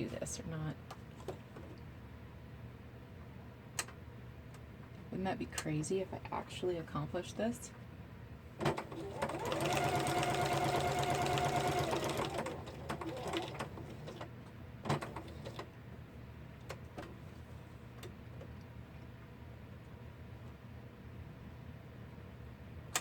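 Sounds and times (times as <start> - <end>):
sewing machine stitching: 8.6 - 15.7.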